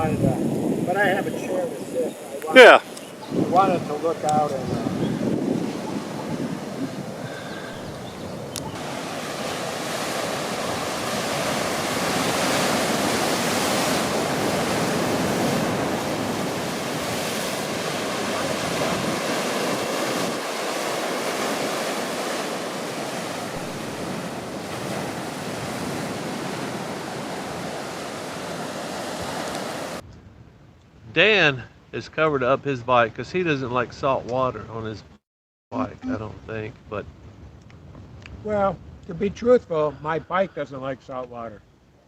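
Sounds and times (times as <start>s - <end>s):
ocean surf washing onto shore: 0.0s - 30.0s.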